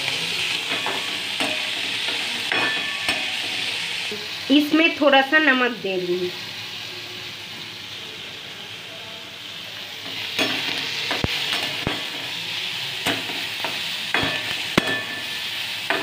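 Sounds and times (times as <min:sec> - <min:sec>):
spatula clinking and scraping pan: 0:00.0 - 0:04.0, 0:10.0 - 0:16.0
vegetables sizzling in a pan: 0:00.0 - 0:16.0.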